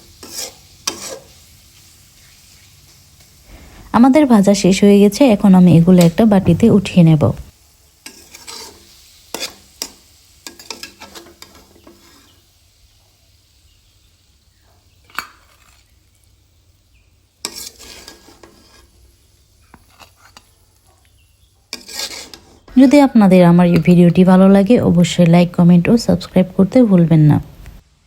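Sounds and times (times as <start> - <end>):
spoon scraping a frying pan: 0.0 - 3.8, 8.0 - 12.5, 15.0 - 16.3, 17.4 - 24.1.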